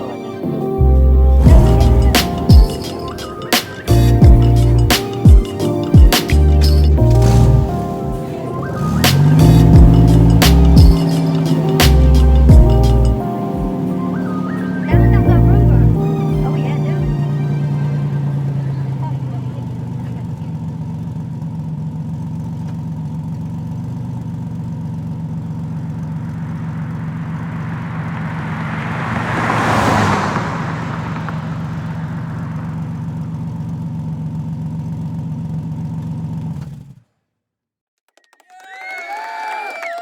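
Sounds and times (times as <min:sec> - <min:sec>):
car engine running: 0:00.5 - 0:37.0
whooshing swell: 0:26.1 - 0:33.1.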